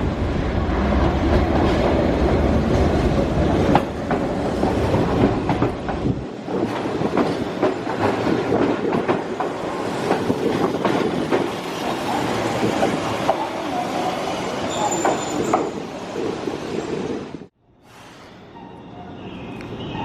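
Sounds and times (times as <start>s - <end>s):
train rumble: 0.0s - 17.6s
train wheels clacking over rail joints: 3.6s - 11.6s.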